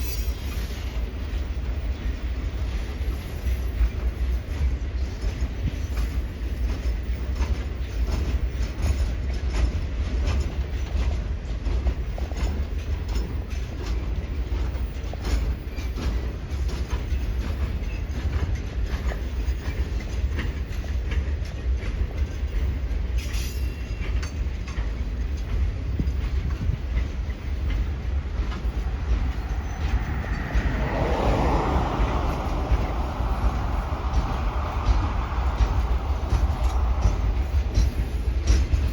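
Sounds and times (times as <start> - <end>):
freight train rumbling past: 0.0 - 38.9
wheel clicks over rail joints: 4.5 - 38.9
high-pitched wheel noise: 27.9 - 38.9.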